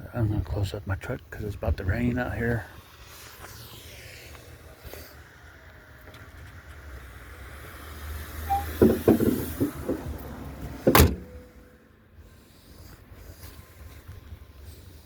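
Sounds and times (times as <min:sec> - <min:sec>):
truck door slamming: 0:08.5 - 0:11.4
knocks and rattles: 0:08.8 - 0:10.2.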